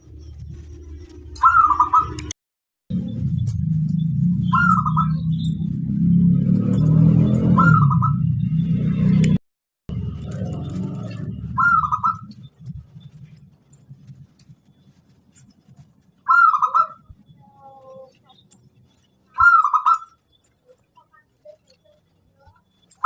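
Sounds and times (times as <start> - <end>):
low rumble: 0.0 - 2.3, 2.9 - 16.3
dove cooing: 11.1 - 12.4, 16.3 - 18.4, 19.4 - 21.8.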